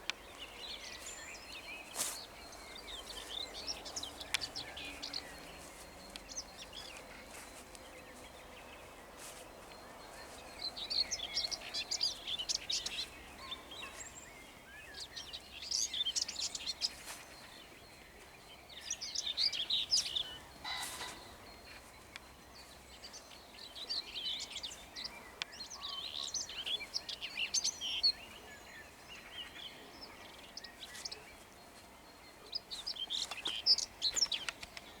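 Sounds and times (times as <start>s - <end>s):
songbirds singing: 0.0s - 35.0s
pheasant harsh crow: 20.6s - 21.3s.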